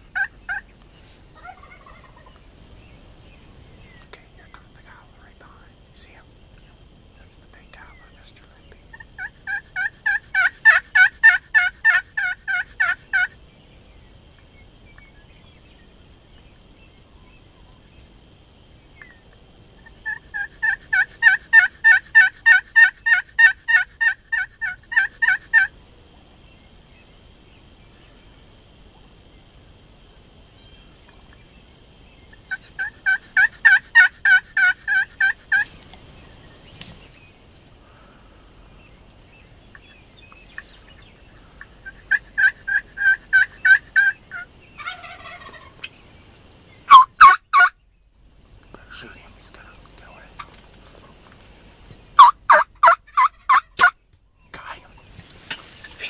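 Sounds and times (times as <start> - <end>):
turkey yelping: 0.1 - 0.6, 1.4 - 2.3, 8.9 - 13.3, 19.9 - 25.7, 32.5 - 35.7, 41.6 - 45.9, 46.9 - 47.7, 52.2 - 54.0.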